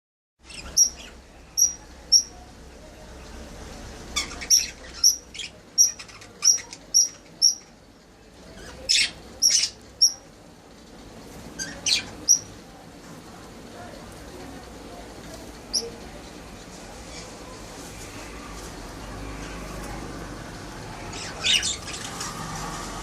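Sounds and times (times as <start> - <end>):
parrots chirping: 0.4 - 2.4, 4.1 - 7.7, 8.5 - 10.2, 11.5 - 12.5, 15.7 - 15.9, 20.7 - 22.9.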